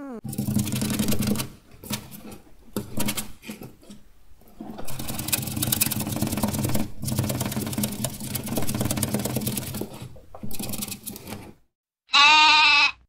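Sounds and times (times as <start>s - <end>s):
hamster gnawing and chewing: 4.5s - 11.5s.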